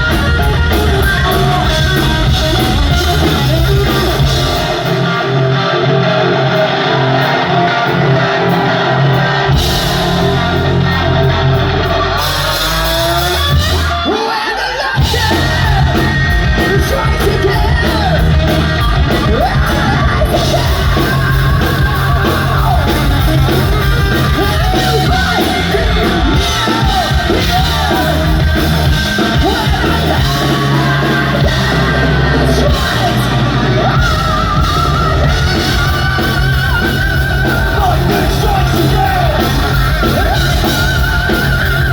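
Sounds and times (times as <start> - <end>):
live hard rock band: 0.0 - 41.9
person singing: 0.0 - 41.9
drum beat: 15.0 - 41.9.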